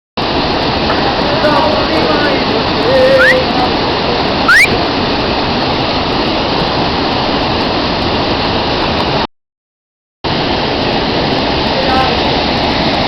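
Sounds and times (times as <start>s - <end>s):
waterfall rushing: 0.2s - 9.2s, 10.3s - 13.0s
short rising whistle: 3.1s - 3.4s, 4.5s - 4.8s.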